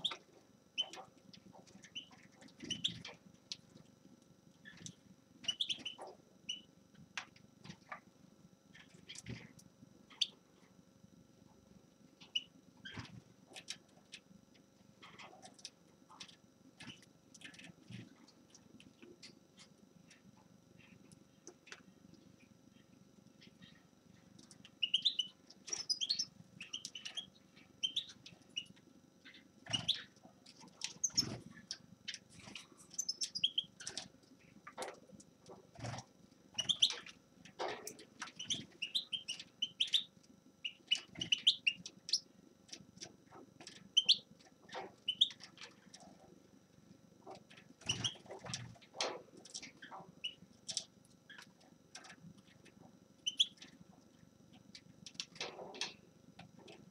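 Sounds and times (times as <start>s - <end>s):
finch chirping: 0.0s - 0.2s, 0.8s - 1.0s, 1.7s - 3.1s, 4.6s - 6.7s, 10.1s - 10.4s, 12.2s - 13.1s, 23.4s - 23.8s, 24.8s - 30.2s, 30.8s - 34.0s, 35.8s - 42.3s, 44.0s - 45.6s, 47.8s - 48.6s, 49.5s - 52.1s, 53.2s - 53.7s.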